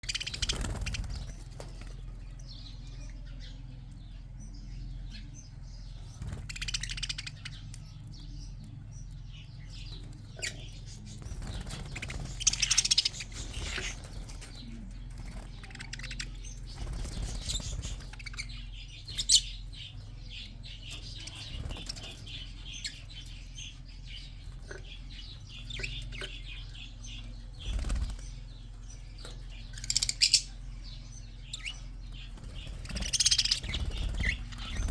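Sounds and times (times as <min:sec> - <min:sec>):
wing flapping: 0:00.0 - 0:02.0, 0:11.2 - 0:14.6, 0:27.6 - 0:28.3, 0:32.3 - 0:34.9
budgerigars chirping: 0:00.0 - 0:34.9
steady low hum: 0:00.0 - 0:34.9.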